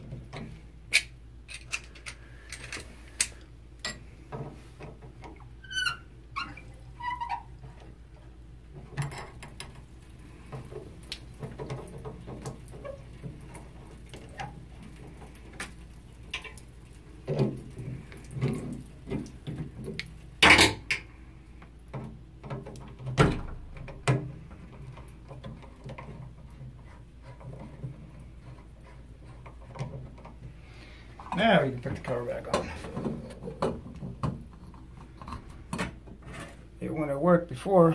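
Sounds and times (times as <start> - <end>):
metal valve parts clinking: 0.9 - 4.0.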